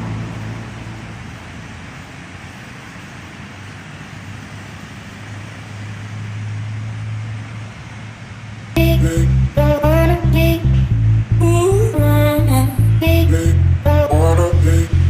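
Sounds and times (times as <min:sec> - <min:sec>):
steady low hum: 0:08.1 - 0:15.0.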